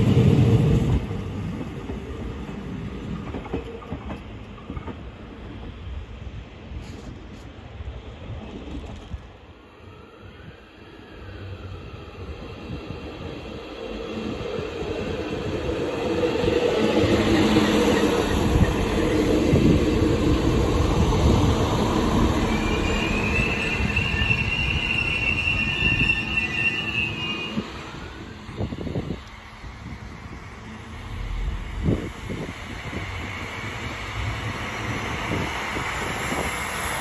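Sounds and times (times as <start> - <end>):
train wheels rumbling on rail: 0.0 - 9.7, 11.4 - 37.0
high metallic squeal: 22.0 - 28.6.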